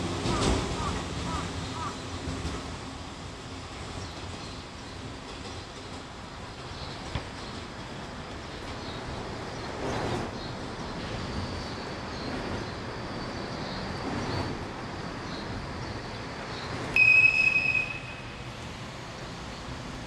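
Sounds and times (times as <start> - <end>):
freight train rumble: 0.0 - 20.0
locomotive whistle blast: 17.0 - 18.5.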